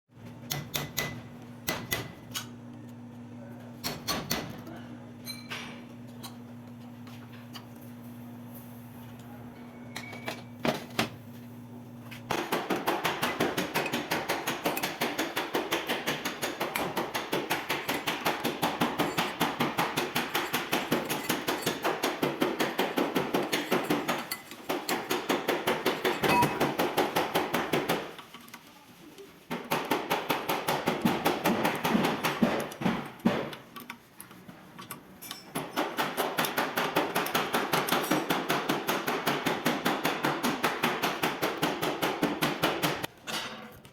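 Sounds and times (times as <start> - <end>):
rapid hammer blows on metal: 12.3 - 28.2.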